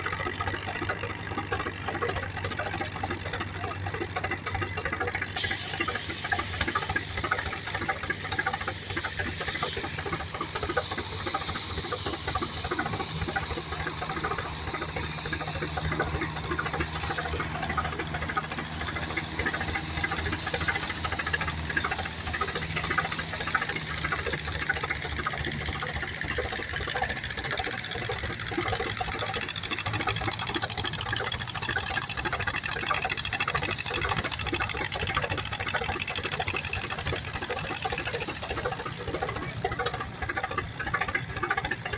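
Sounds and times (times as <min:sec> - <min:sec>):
tractor engine running: 0:00.0 - 0:41.9
steady hiss: 0:05.4 - 0:27.1.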